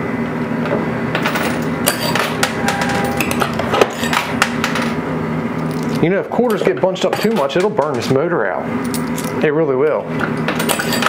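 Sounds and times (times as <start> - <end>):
arcade hum: 0.7 - 8.0
coins clinking and clattering: 1.2 - 5.0, 10.6 - 11.0.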